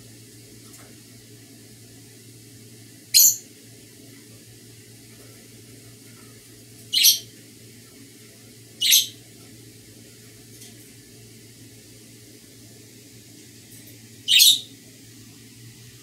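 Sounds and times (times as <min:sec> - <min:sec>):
low steady hum: 0:00.0 - 0:16.0
bird high-pitched chirps: 0:03.1 - 0:03.4, 0:06.9 - 0:07.3, 0:08.8 - 0:09.2, 0:14.2 - 0:14.7.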